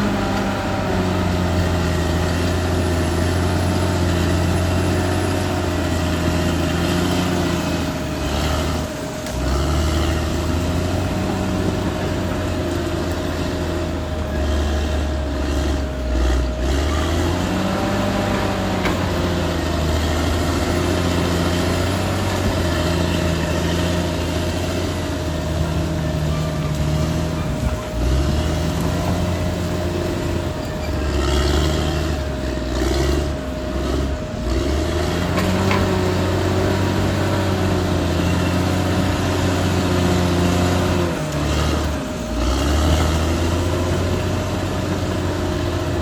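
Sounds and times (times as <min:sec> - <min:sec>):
bulldozer diesel engine working: 0:00.0 - 0:46.0
steady whine: 0:00.0 - 0:46.0.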